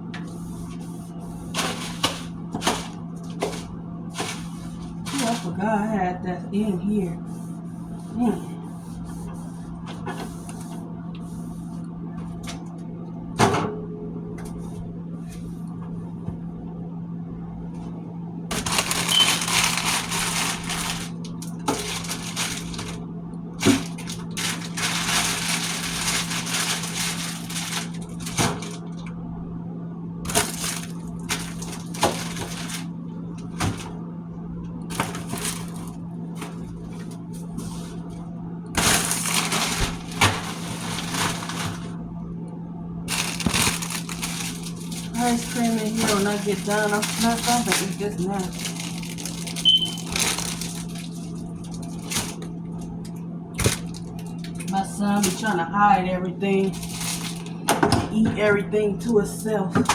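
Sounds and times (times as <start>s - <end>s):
steady low hum: 0.0s - 59.9s
packaging rustling and crinkling: 1.5s - 5.6s, 18.5s - 29.1s, 30.3s - 34.0s, 34.9s - 38.2s, 38.8s - 42.0s, 43.1s - 53.0s, 53.6s - 55.5s, 56.6s - 57.7s.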